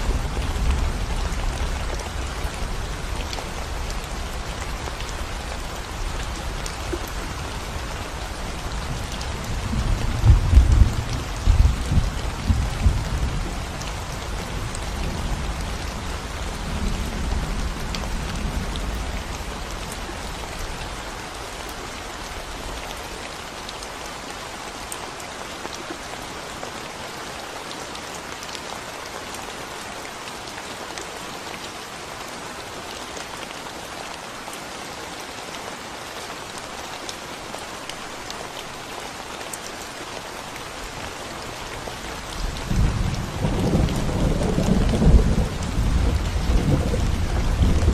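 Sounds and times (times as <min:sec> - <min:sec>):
rain on concrete road: 0:00.0 - 0:47.9.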